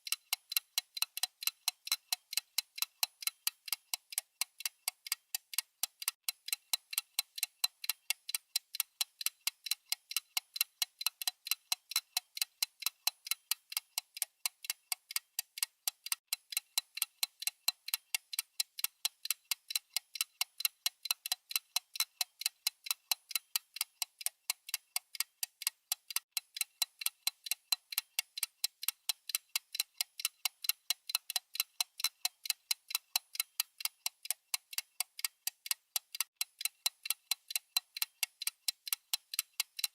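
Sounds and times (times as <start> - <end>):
clock ticking fast: 0.0 - 39.9.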